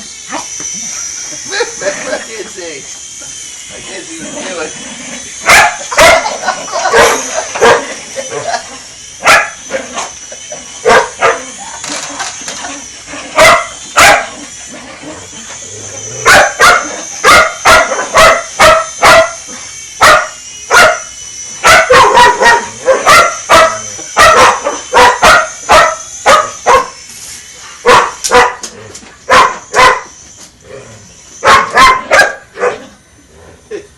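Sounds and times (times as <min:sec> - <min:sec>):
high-pitched whine: 0:00.0 - 0:33.9
dog barking: 0:05.4 - 0:07.9, 0:09.2 - 0:09.6, 0:10.8 - 0:11.5, 0:13.4 - 0:14.4, 0:16.2 - 0:19.4, 0:20.0 - 0:27.0, 0:27.8 - 0:28.6, 0:29.3 - 0:30.1, 0:31.4 - 0:32.9.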